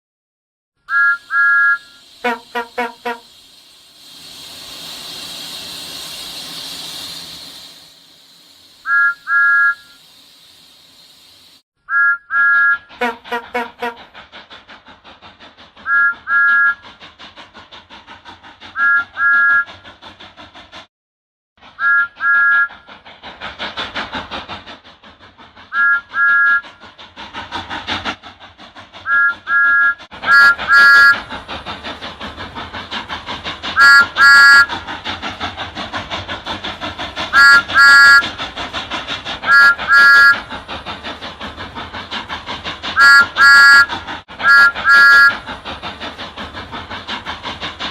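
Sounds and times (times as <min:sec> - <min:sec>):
locomotive whistle toots: 0:00.9 - 0:03.4, 0:08.8 - 0:10.0, 0:11.9 - 0:14.0, 0:15.8 - 0:16.8, 0:18.8 - 0:19.7, 0:21.7 - 0:22.8, 0:25.7 - 0:26.6, 0:29.0 - 0:31.3, 0:33.8 - 0:34.8, 0:37.3 - 0:38.4, 0:39.4 - 0:40.5, 0:43.0 - 0:45.5
steam locomotive chuffing: 0:00.9 - 0:11.6, 0:12.3 - 0:20.9, 0:21.6 - 0:47.9
steam hissing: 0:01.2 - 0:11.6, 0:12.9 - 0:20.9, 0:21.6 - 0:47.9.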